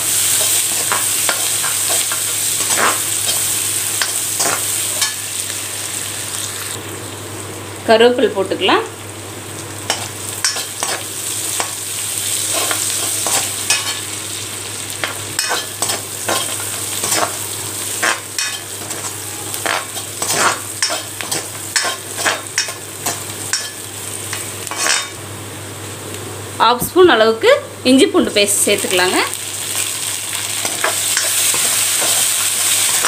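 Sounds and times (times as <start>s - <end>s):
onions sizzling in hot oil: 0.0s - 26.2s, 28.2s - 33.0s
metal spoon scraping a pan: 15.4s - 23.8s, 24.7s - 25.2s.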